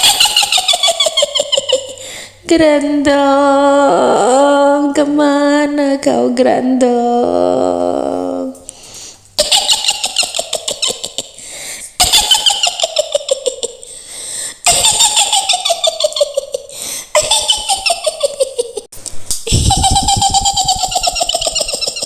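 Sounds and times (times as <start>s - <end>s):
witch's high cackling laugh: 0.0s - 2.0s, 9.4s - 11.4s, 12.0s - 13.9s, 14.6s - 18.9s, 19.5s - 22.0s.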